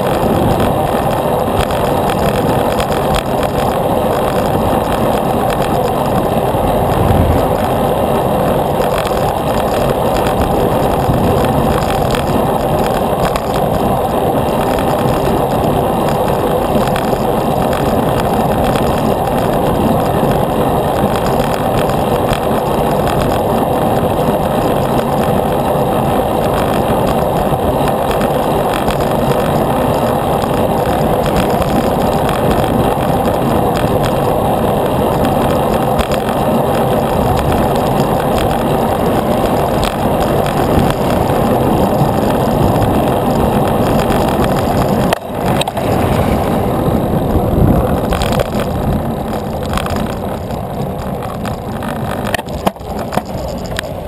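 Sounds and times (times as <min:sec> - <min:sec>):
road noise: 0:00.0 - 0:54.0
wind buffeting microphone: 0:00.0 - 0:54.0
brief low thump: 0:06.7 - 0:07.8.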